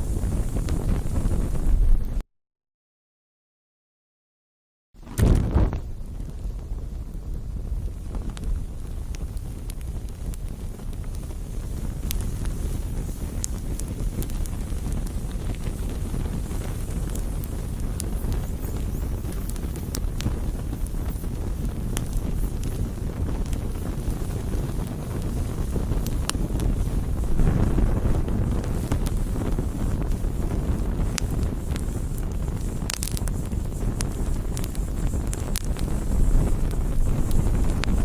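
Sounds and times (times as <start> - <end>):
campfire crackling and popping: 0.0 - 2.2, 5.0 - 38.0.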